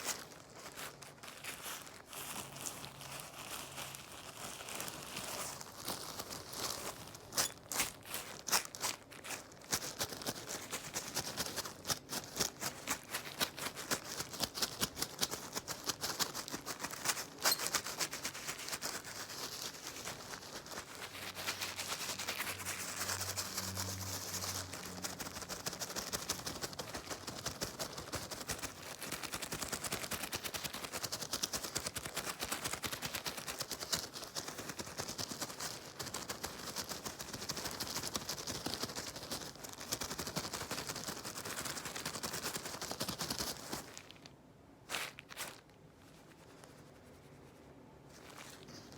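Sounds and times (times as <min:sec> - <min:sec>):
cleaning tool crackling and scratching: 0:17.2 - 0:18.8, 0:21.2 - 0:25.4.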